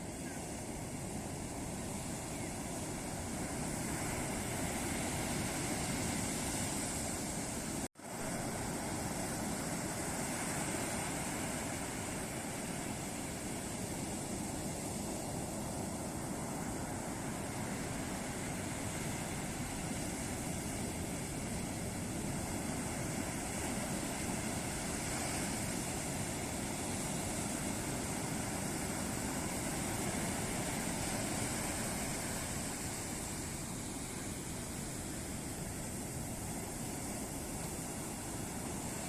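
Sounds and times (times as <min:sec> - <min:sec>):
ocean waves breaking on beach: 0:00.0 - 0:39.0.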